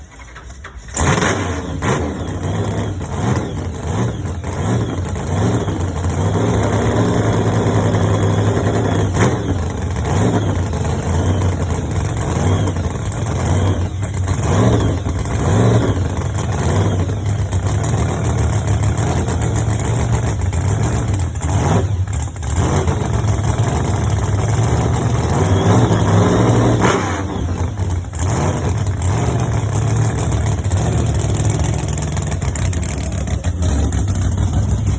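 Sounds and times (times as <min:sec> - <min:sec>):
truck engine revving: 0:00.0 - 0:34.9.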